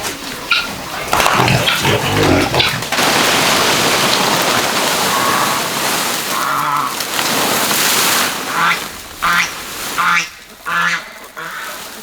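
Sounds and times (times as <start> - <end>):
ducks calling: 0.4 - 3.0, 8.5 - 12.0.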